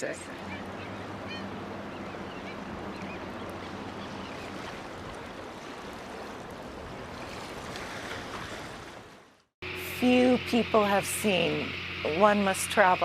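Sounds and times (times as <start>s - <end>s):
low steady hum: 0.0s - 7.0s, 9.6s - 13.0s
gulls and terns calling: 0.1s - 6.3s.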